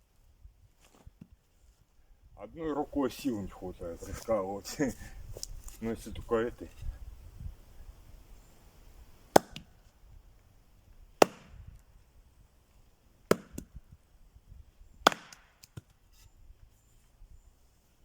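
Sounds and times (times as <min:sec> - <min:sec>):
axe striking firewood: 0:09.2 - 0:09.9, 0:11.2 - 0:11.8, 0:13.3 - 0:13.9, 0:15.0 - 0:16.0.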